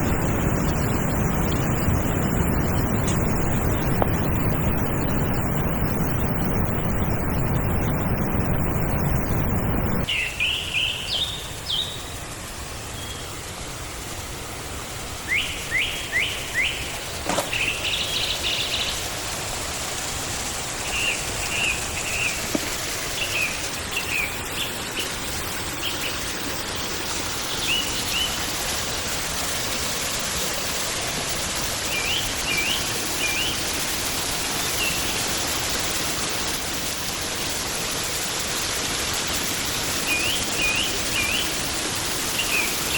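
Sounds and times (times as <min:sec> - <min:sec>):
small birds chirping: 0:00.0 - 0:12.2, 0:15.2 - 0:19.4, 0:20.4 - 0:29.4, 0:31.8 - 0:42.9
forest stream rushing: 0:00.0 - 0:42.9.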